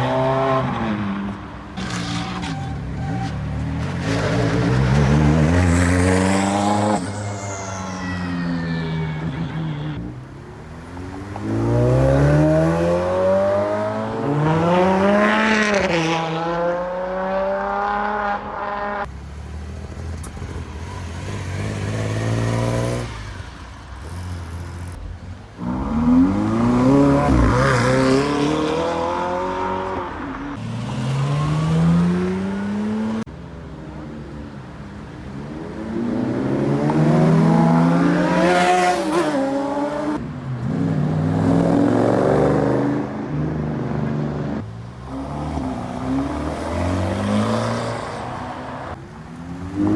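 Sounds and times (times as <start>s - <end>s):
sports cars accelerating: 8.6s - 19.1s, 24.8s - 33.3s, 35.0s - 49.9s.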